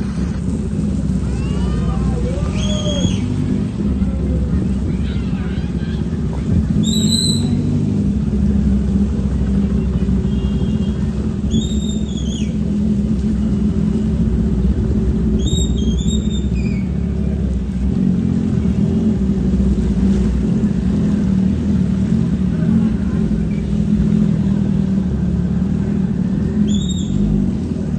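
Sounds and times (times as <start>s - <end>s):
motorcycle engine low rumble: 0.0s - 27.9s.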